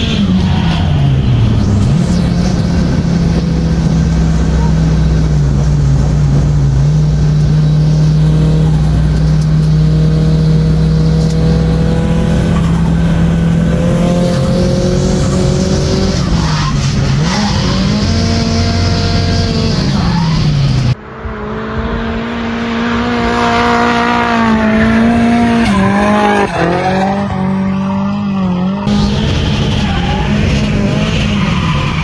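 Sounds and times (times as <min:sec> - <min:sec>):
tyres squealing: 0:00.0 - 0:21.0, 0:28.9 - 0:32.0
car engine at high revs: 0:00.0 - 0:32.0.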